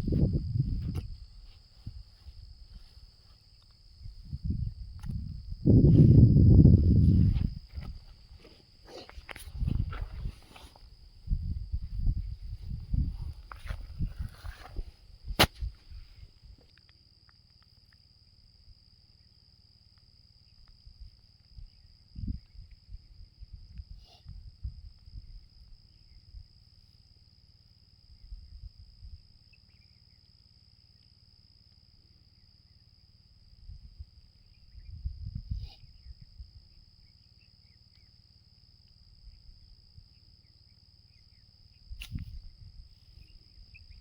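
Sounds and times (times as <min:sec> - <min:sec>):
low rumbling thumps: 0:00.0 - 0:02.8
insects droning: 0:00.0 - 0:44.0
sharp click: 0:42.0 - 0:42.4.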